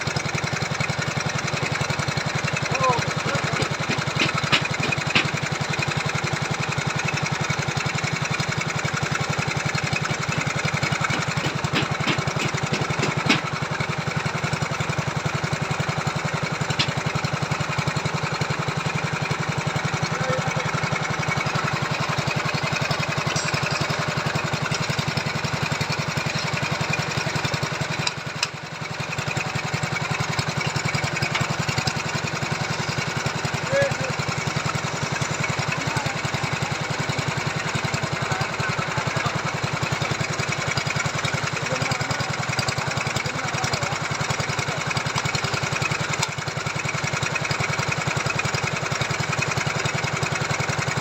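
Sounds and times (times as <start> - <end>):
earth auger engine running: 0.0 - 51.0
sharp knocks: 3.5 - 5.4, 11.0 - 13.5.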